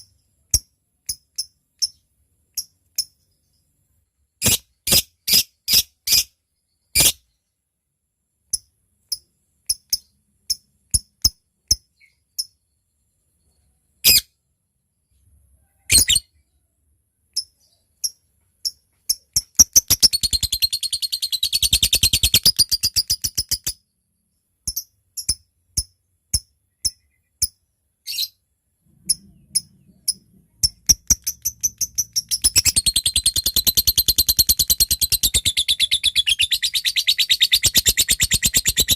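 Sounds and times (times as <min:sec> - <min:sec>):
lovebird ticking chirps: 0:17.4 - 0:23.8, 0:24.6 - 0:27.6, 0:29.1 - 0:38.9
lovebird chattering trill: 0:19.1 - 0:23.8, 0:29.1 - 0:38.9.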